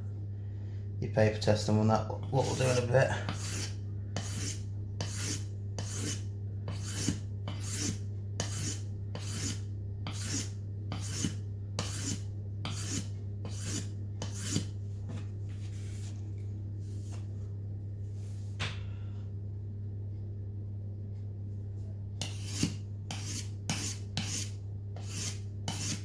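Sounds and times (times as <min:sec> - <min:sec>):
knife scraping on whetstone: 0:02.4 - 0:14.7, 0:22.2 - 0:26.0.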